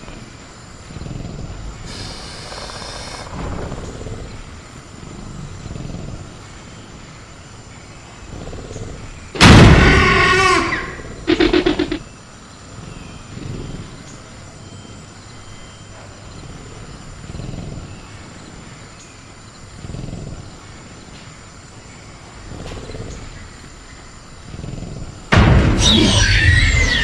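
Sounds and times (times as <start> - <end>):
faint high cricket-like tone: 0.0 - 27.0
dinosaur growling: 0.8 - 6.5, 19.7 - 20.7, 24.4 - 27.0.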